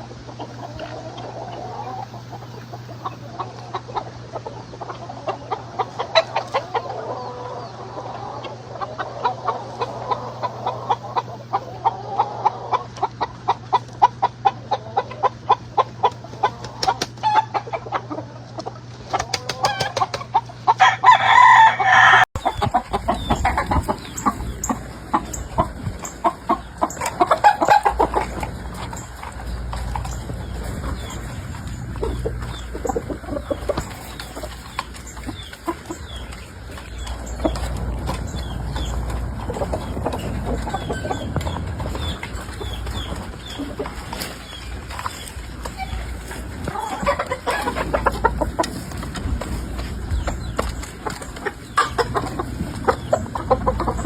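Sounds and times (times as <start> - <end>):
chickens clucking: 0.0 - 54.0
rooster crowing loudly: 20.8 - 22.3.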